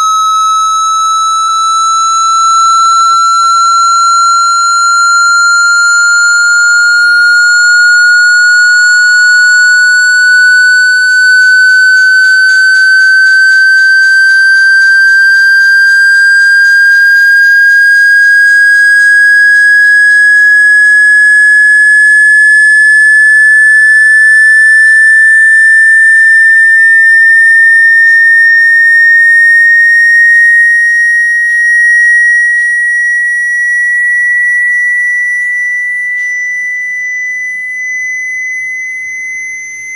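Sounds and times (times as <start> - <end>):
electronic tone sweeping upward: 0.0 - 31.2.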